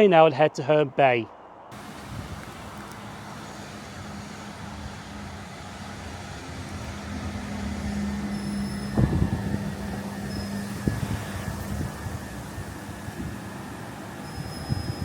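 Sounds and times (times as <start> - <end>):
electric train hum and rumble: 1.4 - 15.0.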